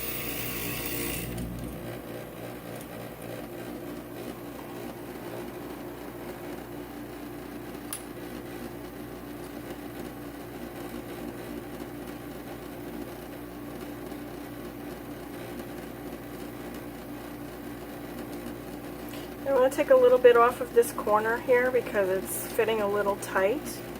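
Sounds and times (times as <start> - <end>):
glass grinder motor hum: 0.0 - 2.9.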